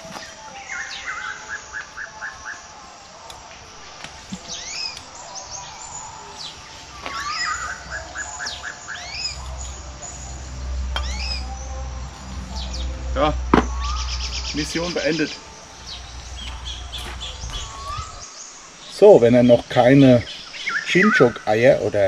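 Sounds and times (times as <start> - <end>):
birds trilling and chirping: 0.0 - 22.0
low rumble: 9.2 - 18.3.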